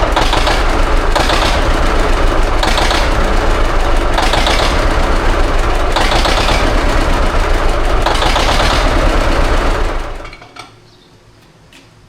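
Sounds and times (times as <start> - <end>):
tractor engine running: 0.0 - 10.4.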